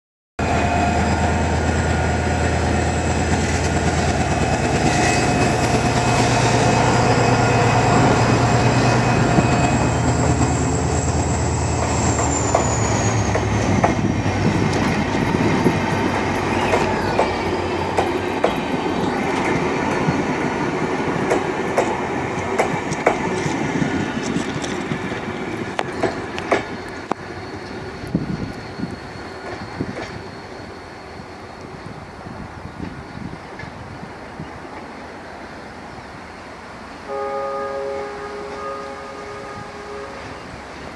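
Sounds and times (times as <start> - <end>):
high squeal sliding down: 0.4 - 20.4, 25.9 - 32.4
locomotive engine humming: 0.4 - 33.3, 36.4 - 40.9.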